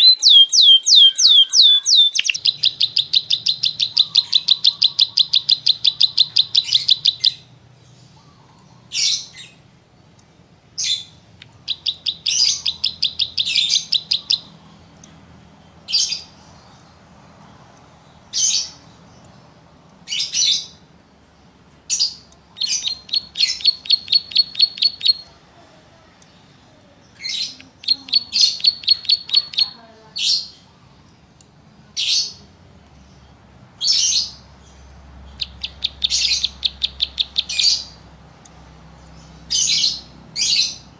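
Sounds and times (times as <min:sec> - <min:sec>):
songbird calling: 0:00.0 - 0:07.5, 0:10.8 - 0:14.5, 0:21.9 - 0:25.3, 0:27.2 - 0:30.6, 0:33.8 - 0:38.0.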